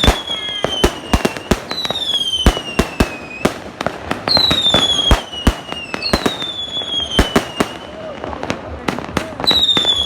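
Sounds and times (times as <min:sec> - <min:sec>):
fireworks whistles: 0:00.0 - 0:08.3, 0:09.2 - 0:10.0
fireworks bangs: 0:00.0 - 0:10.0.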